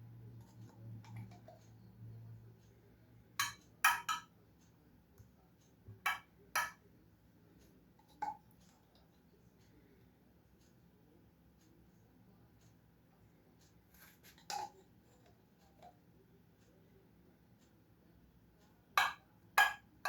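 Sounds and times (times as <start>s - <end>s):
dishes clinking: 3.4s - 4.3s, 6.1s - 6.8s, 14.4s - 14.8s, 19.0s - 19.8s.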